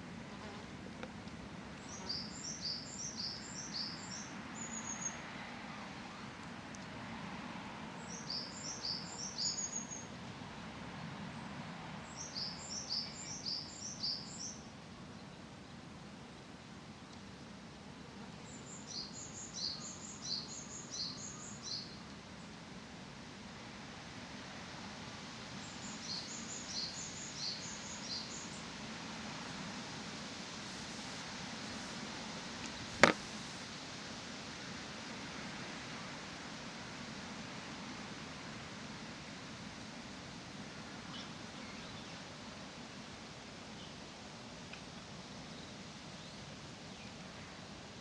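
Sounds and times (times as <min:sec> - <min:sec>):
songbird singing whistled notes: 0:01.8 - 0:05.2, 0:08.0 - 0:10.1, 0:12.0 - 0:15.4, 0:18.4 - 0:22.0, 0:25.6 - 0:28.6.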